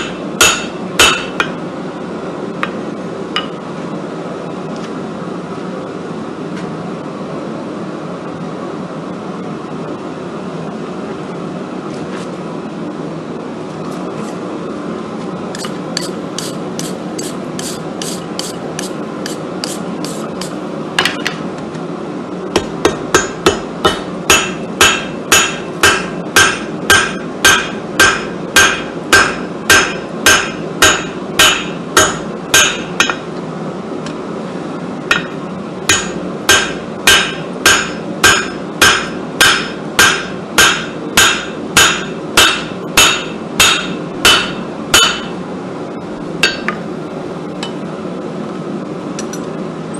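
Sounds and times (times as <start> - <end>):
hammer striking steel on anvil: 0.0 - 1.6, 3.4 - 3.6, 15.6 - 21.2, 22.6 - 33.3, 35.1 - 45.4, 46.4 - 46.8
constant steady hum: 0.0 - 49.9.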